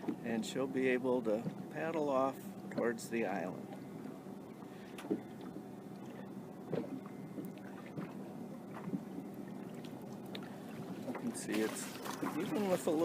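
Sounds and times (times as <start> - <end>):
low steady hum: 0.0 - 13.0
water sloshing around kayak: 0.0 - 13.0
light knocks or splashes: 6.7 - 13.0.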